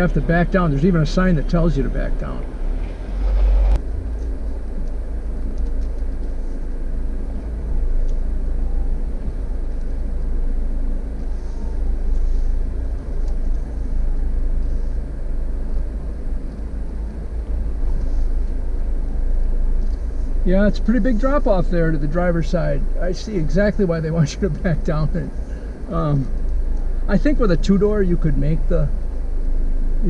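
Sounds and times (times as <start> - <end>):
engine running at low revs: 0.0 - 30.0.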